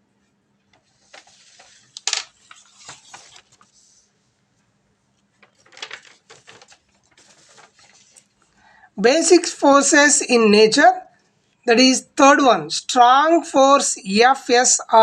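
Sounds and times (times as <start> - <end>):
rustling handling noise: 0.7 - 8.6.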